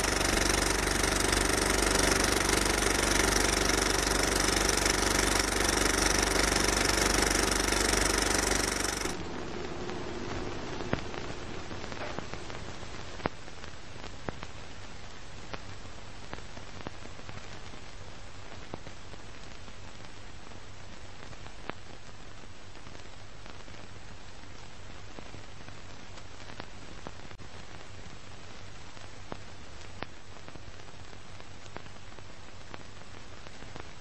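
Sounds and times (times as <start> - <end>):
low hum: 0.0 - 13.3
film soundtrack hiss: 0.0 - 34.0
crackle clicks and pops: 9.0 - 34.0.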